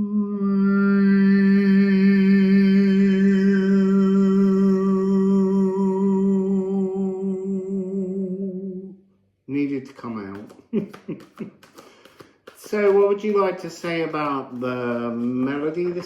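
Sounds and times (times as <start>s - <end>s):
man singing long note: 0.0s - 8.9s.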